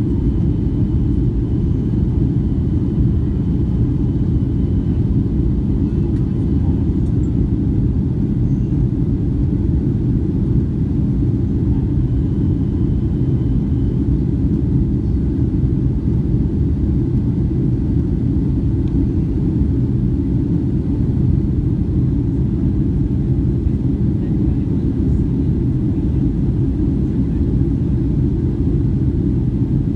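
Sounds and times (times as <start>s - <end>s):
jet airliner low rumble: 0.0s - 29.9s.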